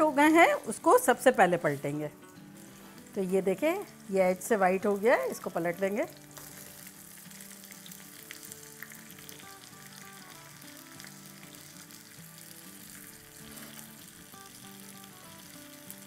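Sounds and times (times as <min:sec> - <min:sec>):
patties sizzling in oil: 0:00.0 - 0:16.0
quiet background music: 0:00.0 - 0:16.0.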